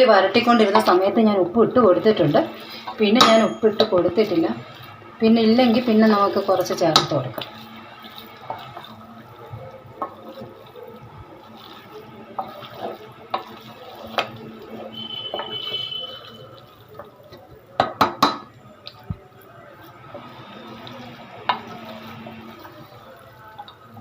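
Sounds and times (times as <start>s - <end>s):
water running: 0.0s - 17.9s, 18.7s - 24.0s
kitchen utensils clinking: 2.5s - 4.6s.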